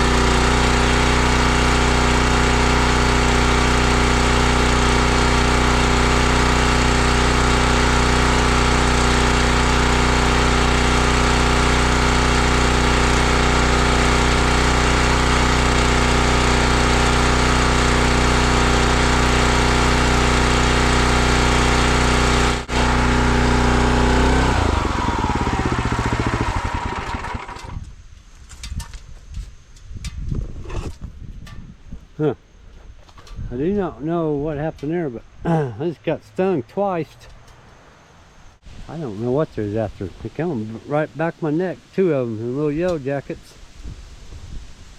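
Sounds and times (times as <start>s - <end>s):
small gasoline engine running: 0.0s - 27.8s.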